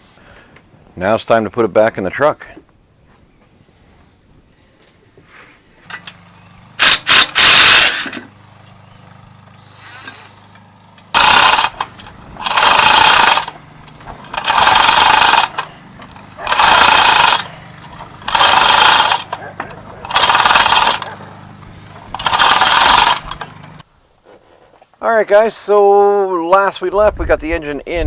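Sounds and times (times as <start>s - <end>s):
steady low hum: 2.8s - 24.3s
power tool bursts: 5.8s - 19.4s, 20.0s - 23.8s.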